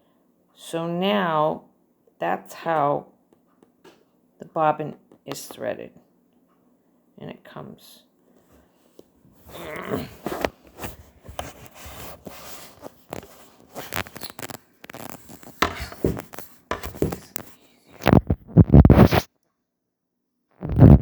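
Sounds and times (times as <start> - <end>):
scratching: 9.4 - 19.3
hands handling bobbin and thread: 10.2 - 18.3.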